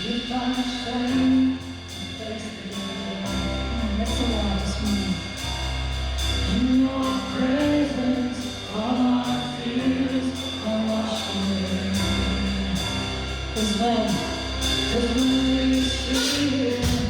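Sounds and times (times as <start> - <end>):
band playing: 3.1 - 17.0
person singing: 14.9 - 17.0.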